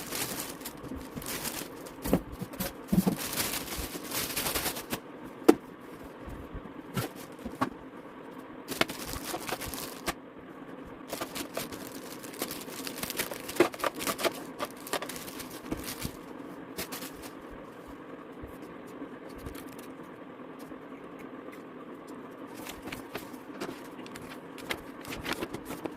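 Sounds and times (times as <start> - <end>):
packaging scrapes and rustles: 0.0 - 5.0, 8.7 - 10.2, 11.1 - 17.4, 22.5 - 25.9
faint steady hum: 0.0 - 25.9.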